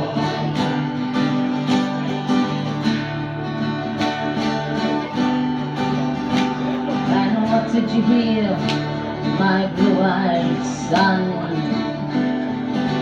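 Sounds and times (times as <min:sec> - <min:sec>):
acoustic guitars strumming: 0:00.0 - 0:13.0
person singing folk song: 0:00.0 - 0:13.0.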